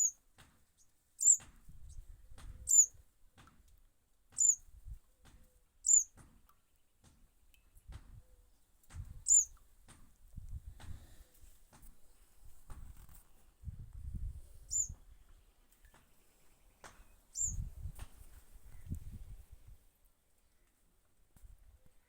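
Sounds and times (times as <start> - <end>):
young bird chirping: 0.0 - 0.2, 0.8 - 3.0, 4.3 - 4.7, 5.8 - 6.2, 9.2 - 9.6, 14.6 - 15.1, 15.9 - 17.7.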